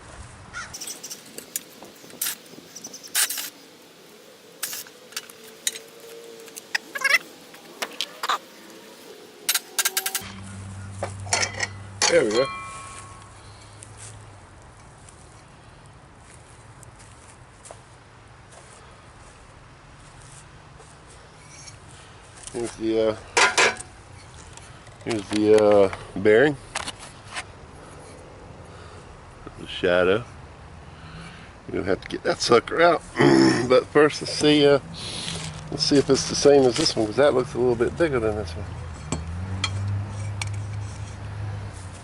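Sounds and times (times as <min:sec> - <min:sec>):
tools scraping: 0:00.7 - 0:03.6, 0:04.6 - 0:08.5, 0:09.4 - 0:13.7, 0:21.4 - 0:21.8, 0:38.8 - 0:42.0
metallic clicks and clinks: 0:09.5 - 0:10.4.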